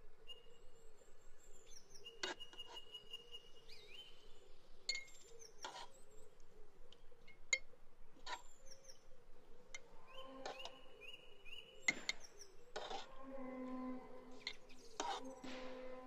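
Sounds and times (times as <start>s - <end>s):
birds chirping and whistling: 9.8s - 16.0s.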